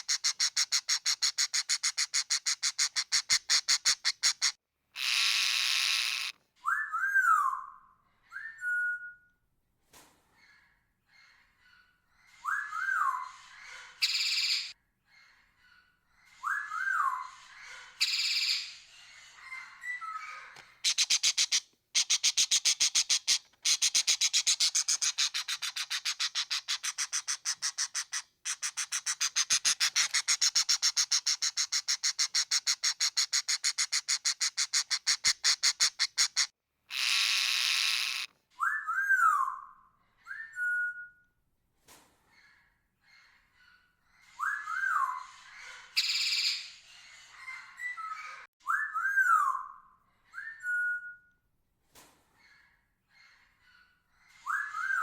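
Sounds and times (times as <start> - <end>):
parrot rapid chattering: 0.0 - 6.3, 20.8 - 38.3
parrot screech: 0.0 - 6.3, 33.7 - 38.3.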